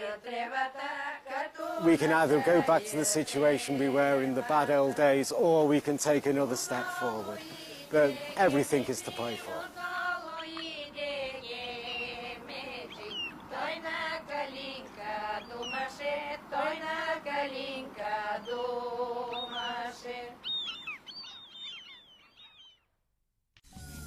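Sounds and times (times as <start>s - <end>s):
wordless sung notes: 0.0s - 22.8s
high bird chirps: 11.6s - 12.2s, 12.8s - 13.5s, 15.2s - 15.9s, 19.3s - 23.0s.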